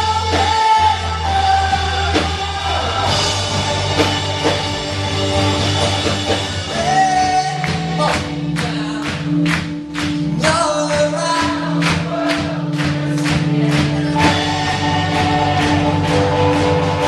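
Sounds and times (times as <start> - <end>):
voices singing together: 0.0 - 9.2, 11.0 - 17.0
drum beat: 0.0 - 17.0
rock band playing: 0.0 - 17.0.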